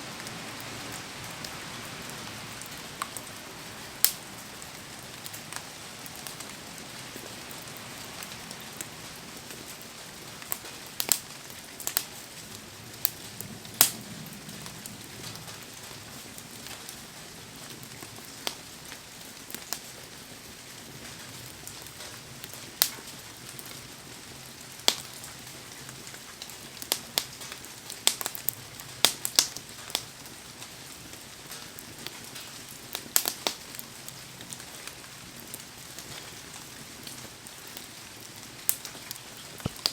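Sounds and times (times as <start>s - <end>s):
heavy rain hissing: 0.0s - 11.0s
wood fire crackling and popping: 0.1s - 39.9s.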